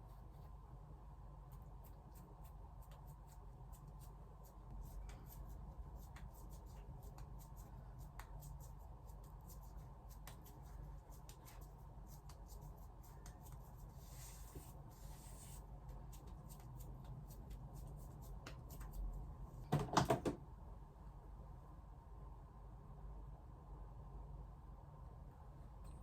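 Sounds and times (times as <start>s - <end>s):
soft rustle: 1.4s - 19.2s.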